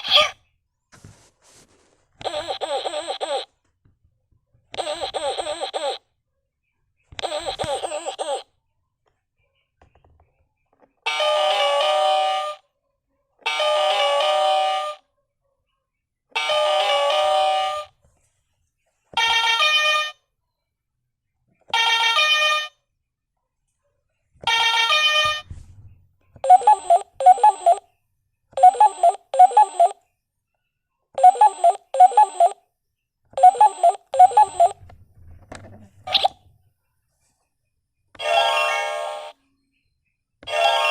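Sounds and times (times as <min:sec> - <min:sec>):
electronic ringtone melody: 0:26.4 - 0:27.8, 0:28.6 - 0:30.0, 0:31.2 - 0:32.6, 0:33.4 - 0:34.8
telephone ringing: 0:26.4 - 0:27.8, 0:28.6 - 0:30.0, 0:31.2 - 0:32.6, 0:33.4 - 0:34.8.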